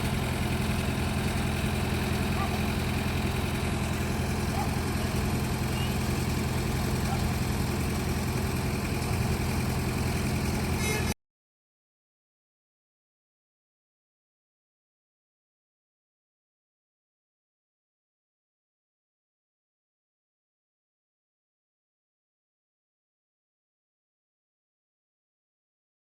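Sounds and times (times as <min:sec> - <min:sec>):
truck engine idling: 0:00.0 - 0:11.2.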